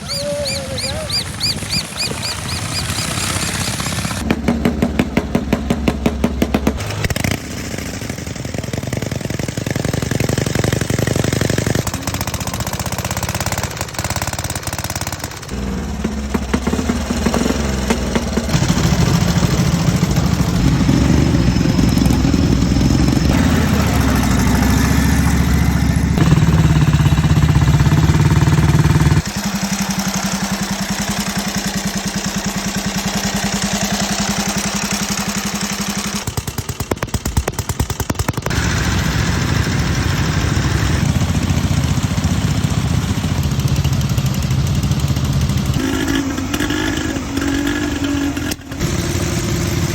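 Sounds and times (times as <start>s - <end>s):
motorcycle engines running: 0.0s - 49.9s.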